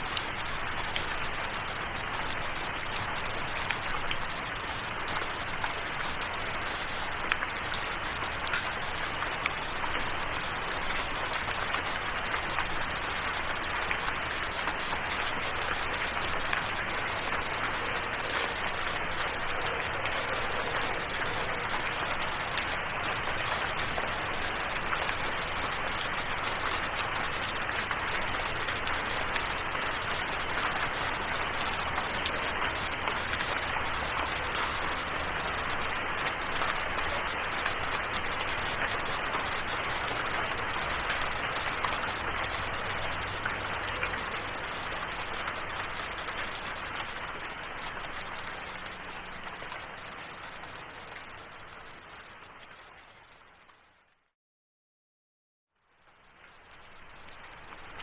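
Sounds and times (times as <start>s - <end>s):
steady rain falling: 0.0s - 54.2s, 55.8s - 58.0s.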